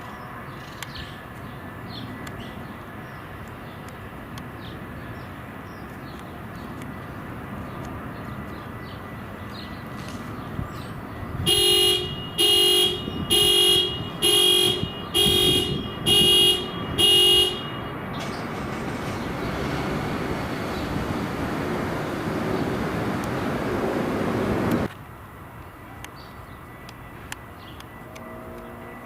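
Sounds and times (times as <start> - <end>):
horn blasts: 11.4 - 24.9.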